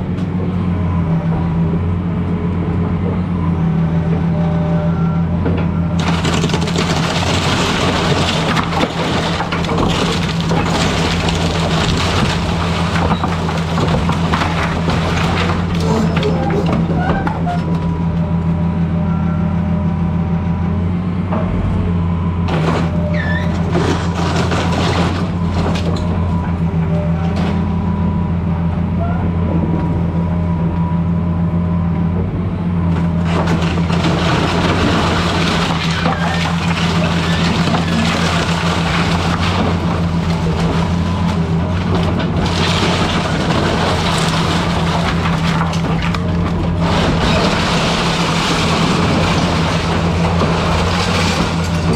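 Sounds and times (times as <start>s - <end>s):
excavator diesel engine running: 0.0s - 51.9s
broad crunching noise: 6.0s - 17.9s, 32.9s - 51.9s.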